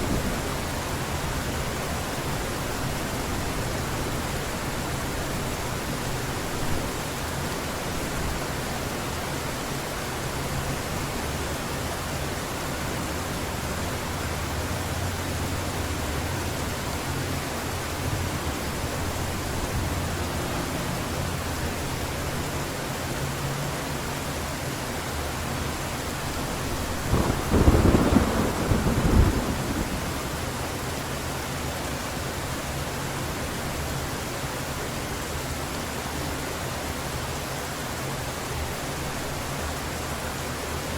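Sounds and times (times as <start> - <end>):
heavy rain falling: 0.0 - 40.9
low rolling thunder: 26.9 - 30.7
sharp thunder crack: 27.1 - 30.3.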